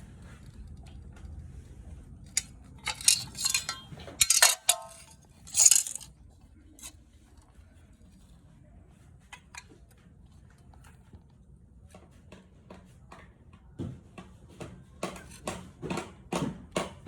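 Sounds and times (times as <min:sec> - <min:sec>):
aluminium pieces knocking together: 0:02.4 - 0:06.1.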